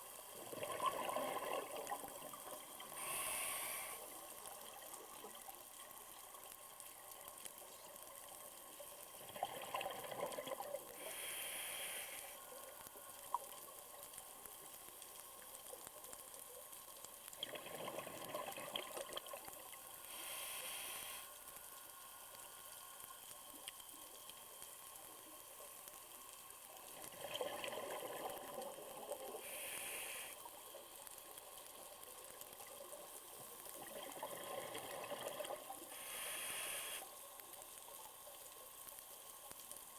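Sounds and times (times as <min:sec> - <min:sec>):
exhaled bubbles underwater: 0:00.4 - 0:03.0, 0:09.2 - 0:11.0, 0:17.4 - 0:19.7, 0:26.9 - 0:29.4, 0:33.8 - 0:35.9
regulator hiss on inhale: 0:02.8 - 0:04.6, 0:10.9 - 0:13.3, 0:19.9 - 0:23.3, 0:29.3 - 0:31.2, 0:35.7 - 0:37.5.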